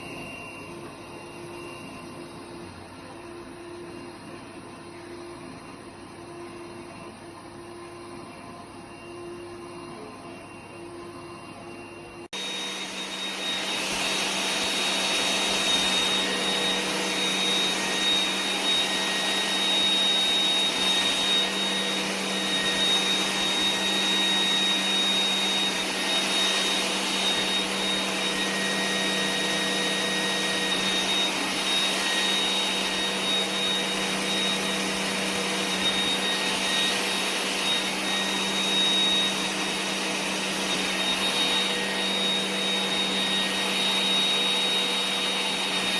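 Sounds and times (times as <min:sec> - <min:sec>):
robot vacuum cleaner whirring: 0:00.0 - 0:45.9.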